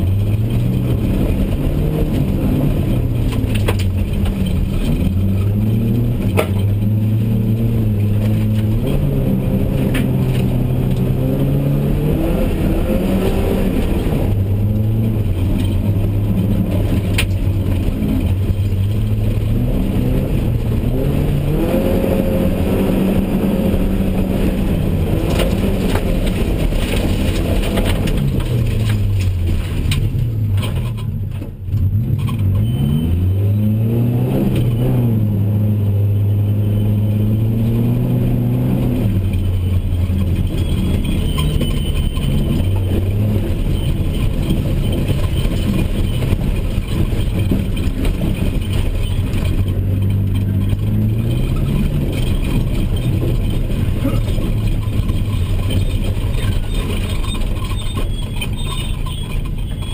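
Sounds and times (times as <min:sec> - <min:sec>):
car engine revving: 0:00.0 - 0:59.9
tyres rumbling on dirt: 0:00.0 - 0:59.9.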